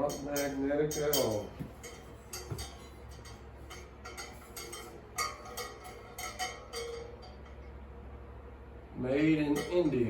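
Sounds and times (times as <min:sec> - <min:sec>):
metallic clinks and taps: 0:00.0 - 0:07.7.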